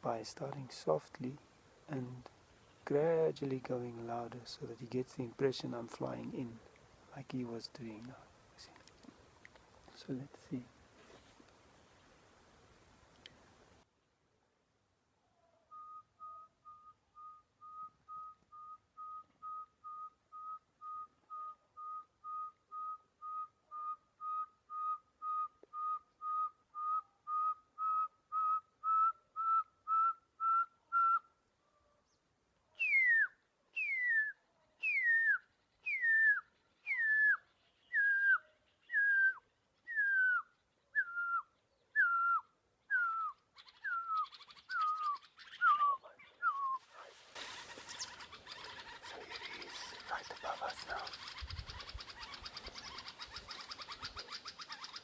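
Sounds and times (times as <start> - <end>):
person whistling bird song: 15.7 - 31.3, 32.8 - 46.9.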